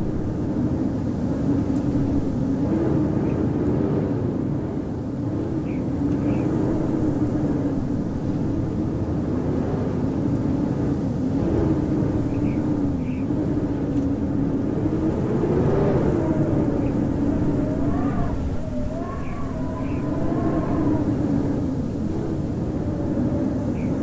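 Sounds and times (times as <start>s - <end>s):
howling wind: 0.0s - 24.0s.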